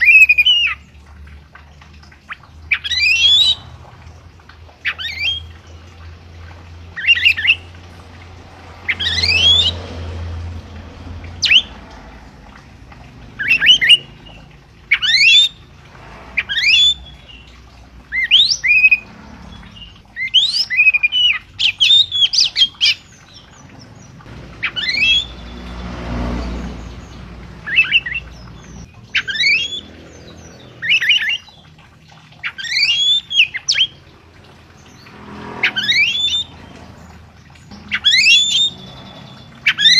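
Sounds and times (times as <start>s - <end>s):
songbird whistled calls: 0.0s - 0.8s, 2.7s - 3.6s, 7.0s - 7.7s, 8.9s - 9.8s, 11.4s - 11.7s, 13.4s - 14.1s, 14.9s - 15.6s, 18.1s - 19.0s, 24.6s - 25.8s, 27.6s - 29.9s, 32.5s - 34.0s, 35.6s - 36.5s, 37.8s - 39.9s.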